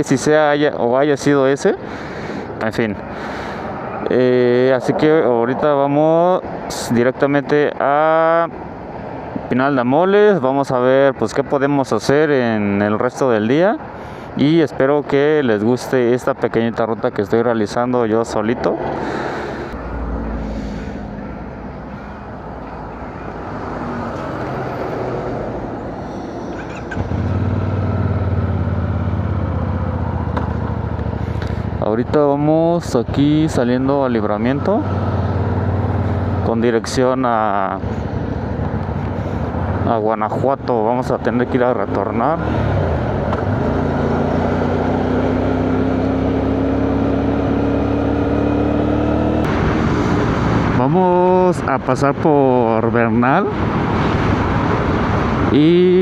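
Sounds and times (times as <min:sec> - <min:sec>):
wind and road rush: 0:00.0 - 0:56.0
motorcycle engine accelerating: 0:19.8 - 0:31.8, 0:34.4 - 0:36.6, 0:42.2 - 0:51.3
motorcycle engine running: 0:26.5 - 0:31.8.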